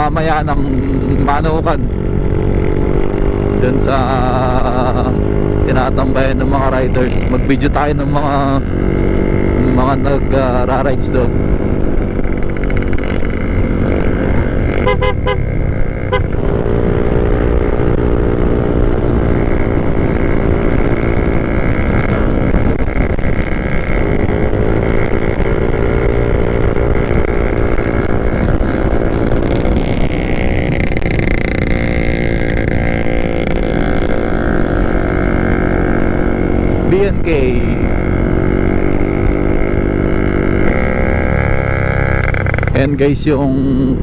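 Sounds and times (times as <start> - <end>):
scooter engine running: 0.0 - 44.0
horn beeping: 14.7 - 16.4
wind rush on microphone: 15.6 - 41.1.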